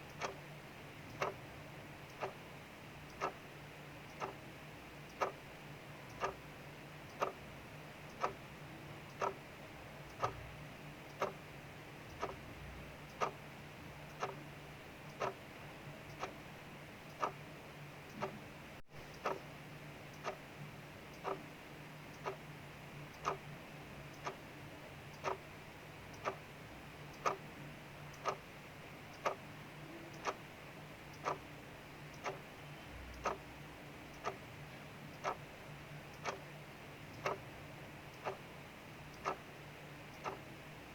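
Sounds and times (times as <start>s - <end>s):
clock ticking: 0.0s - 4.4s, 5.0s - 40.8s.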